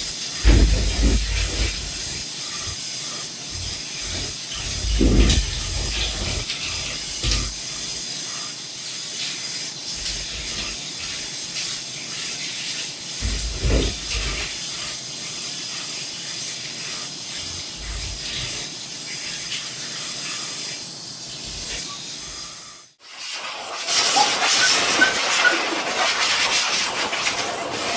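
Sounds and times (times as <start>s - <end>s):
blow dryer hissing: 0.0s - 8.1s, 9.9s - 11.4s, 13.2s - 15.0s, 17.4s - 18.6s
dull low bumps: 0.4s - 2.2s.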